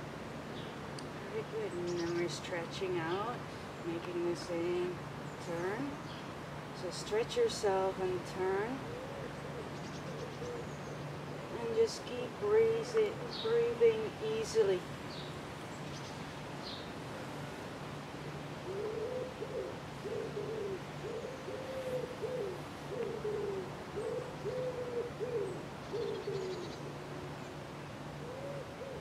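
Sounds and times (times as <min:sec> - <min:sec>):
bird cooing: 0:08.8 - 0:11.6, 0:12.8 - 0:13.8, 0:18.6 - 0:27.5, 0:28.2 - 0:29.0.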